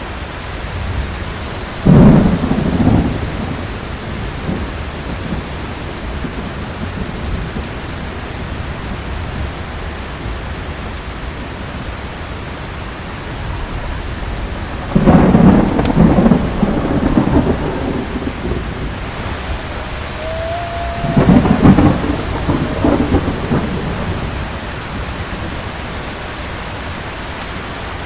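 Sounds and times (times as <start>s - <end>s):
heavy rain falling: 0.0s - 28.0s
thunderclap rumbling: 0.6s - 27.7s
fireplace crackling: 18.2s - 25.1s.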